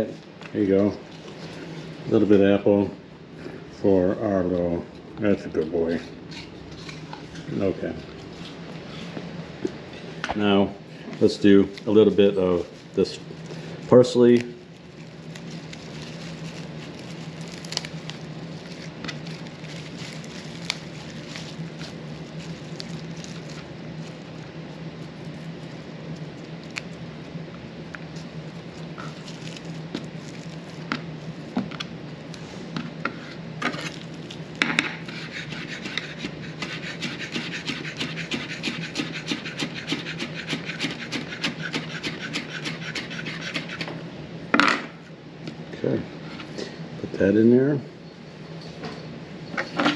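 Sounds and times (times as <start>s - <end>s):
steady low hum: 0.0s - 49.9s
knife scraping cutting board: 35.0s - 44.0s.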